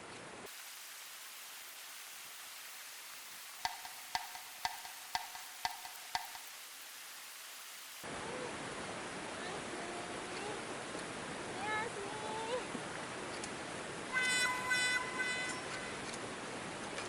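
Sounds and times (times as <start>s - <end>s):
steady hiss: 0.0s - 17.0s
hollow knocks with short ring: 3.7s - 6.5s.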